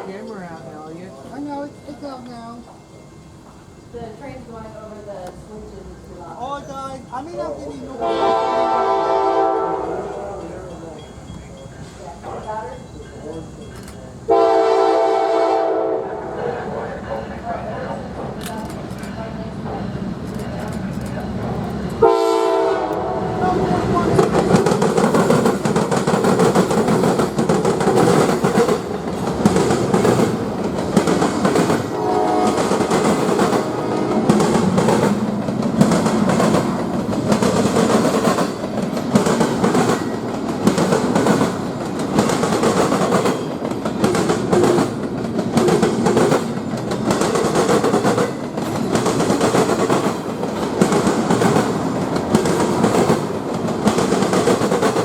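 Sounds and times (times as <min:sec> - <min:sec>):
train rumble: 0:00.0 - 0:55.0
train wheels clacking over rail joints: 0:17.1 - 0:23.1, 0:23.8 - 0:55.0.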